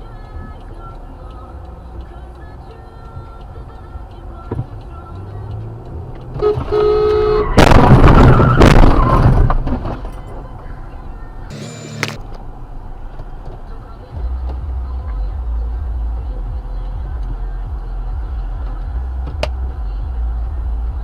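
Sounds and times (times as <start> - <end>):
car road noise: 0.0 - 21.0
car horn blaring: 6.3 - 7.8, 11.5 - 12.2
loud crash: 7.6 - 10.0.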